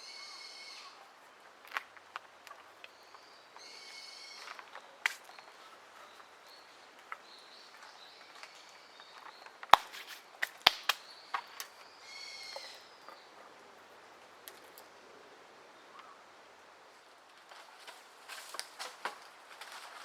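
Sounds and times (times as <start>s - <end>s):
bird harsh drawn-out call: 0.0s - 1.1s, 3.6s - 4.7s, 12.0s - 13.0s
faint outdoor background: 0.0s - 20.0s.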